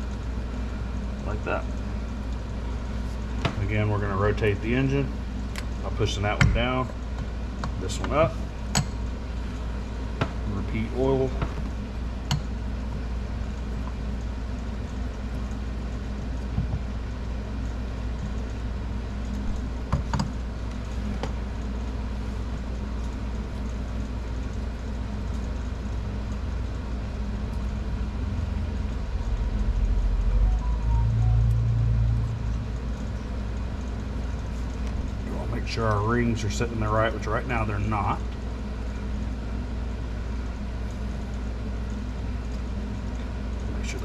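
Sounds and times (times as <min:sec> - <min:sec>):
low background hum: 0:00.0 - 0:44.0
low rumble: 0:29.2 - 0:33.0.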